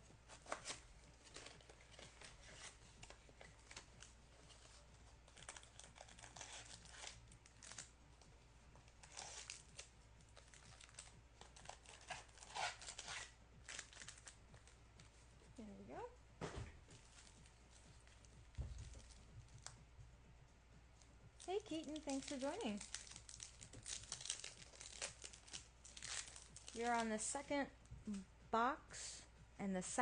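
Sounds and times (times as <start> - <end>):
packaging tearing and crinkling: 5.3 - 7.9, 9.0 - 14.4, 21.9 - 27.0.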